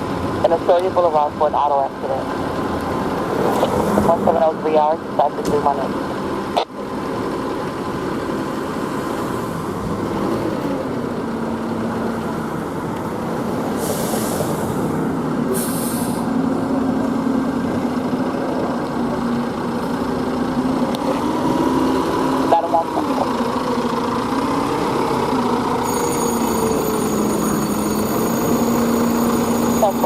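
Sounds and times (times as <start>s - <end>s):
diesel engine running: 0.0s - 30.0s
air brakes hissing: 13.7s - 14.9s, 15.5s - 16.3s.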